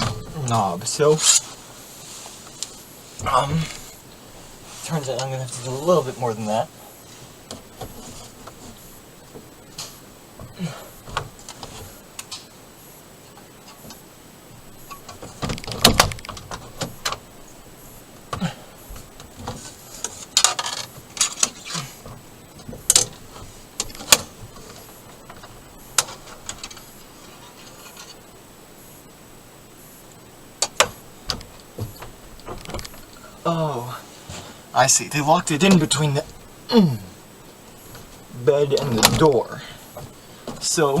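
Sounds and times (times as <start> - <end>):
door clicks rattles and knocks: 14.8 - 17.3, 19.0 - 26.9, 30.6 - 33.1, 37.9 - 40.8.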